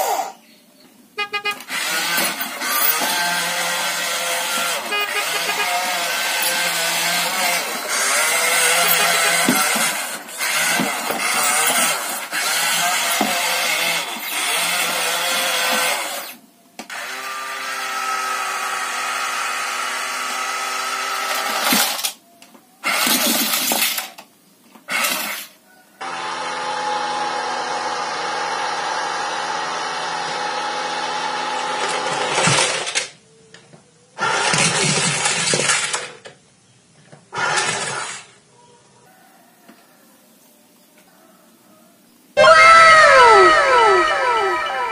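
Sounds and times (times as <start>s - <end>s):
toy electric motors whining: 1.2s - 33.2s, 34.2s - 36.2s, 37.3s - 38.4s, 42.4s - 44.9s.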